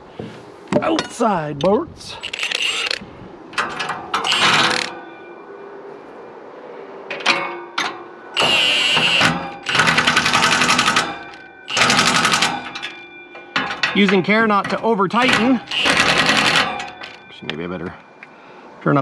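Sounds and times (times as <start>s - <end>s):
impact wrench hammering: 4.2s - 5.0s, 8.4s - 13.0s, 14.7s - 17.2s.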